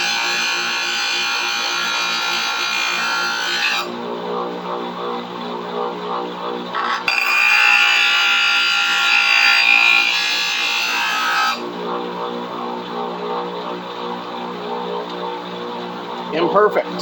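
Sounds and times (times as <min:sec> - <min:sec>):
bench grinder motor hum: 0:00.0 - 0:17.0
metal grinding on wheel: 0:06.6 - 0:17.0.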